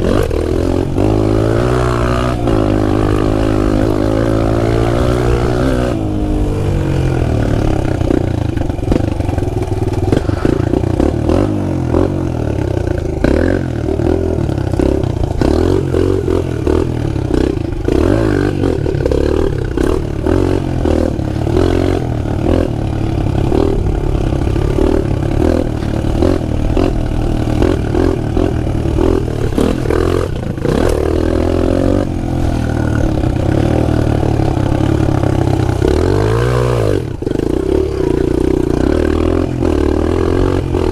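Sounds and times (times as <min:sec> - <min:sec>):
motorbike engine revving: 0:00.0 - 0:40.9.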